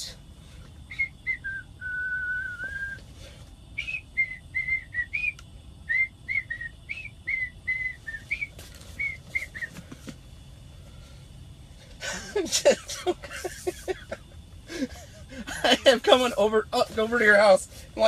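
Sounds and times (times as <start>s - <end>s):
person whistling a tune: 0.9s - 3.0s, 3.8s - 9.8s.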